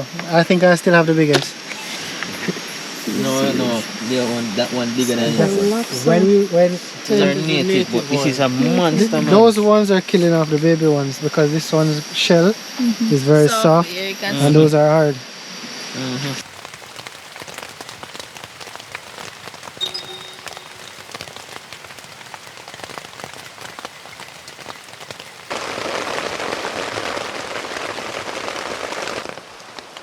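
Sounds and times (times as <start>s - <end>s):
rain falling steadily: 0.0s - 14.9s, 16.0s - 30.0s.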